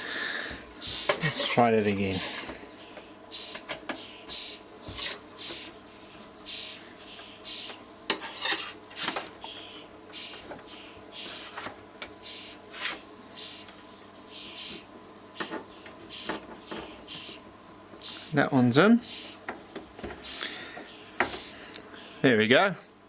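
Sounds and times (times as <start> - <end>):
metal spoon scraping metal parts: 8.1 - 9.2.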